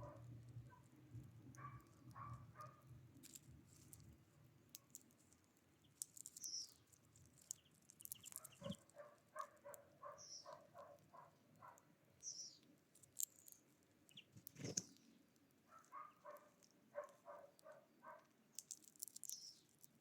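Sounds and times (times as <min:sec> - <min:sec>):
small bird chirping: 0:04.8 - 0:20.0.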